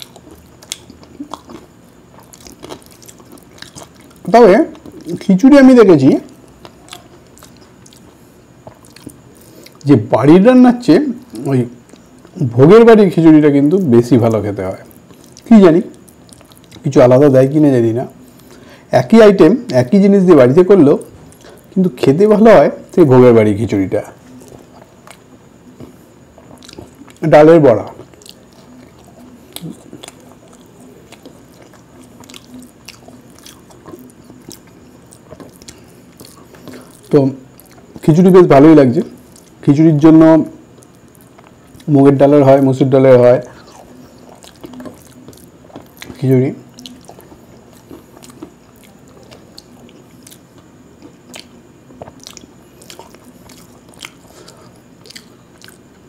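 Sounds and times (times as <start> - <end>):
person chewing food: 0.0 - 5.2, 6.3 - 9.8, 11.2 - 12.4, 14.8 - 16.9, 21.1 - 21.8, 24.2 - 38.1, 39.1 - 39.6, 40.6 - 41.9, 43.4 - 56.0
wet mouth clicks and smacks: 0.0 - 5.2, 24.3 - 27.2, 43.4 - 56.0.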